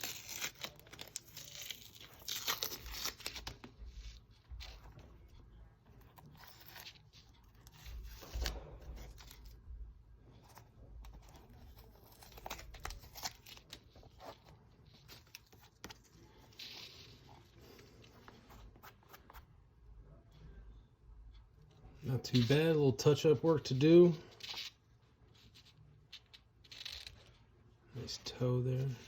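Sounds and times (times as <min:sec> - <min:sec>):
tape being peeled off: 0:00.0 - 0:04.8, 0:11.3 - 0:17.4, 0:25.6 - 0:27.3
tape crinkling: 0:00.0 - 0:05.0, 0:11.0 - 0:19.4.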